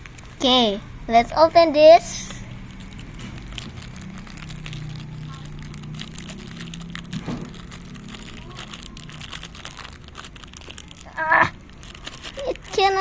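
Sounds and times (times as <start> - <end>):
crinkly packaging crumpling: 2.1 - 13.0
person's voice: 12.3 - 13.0.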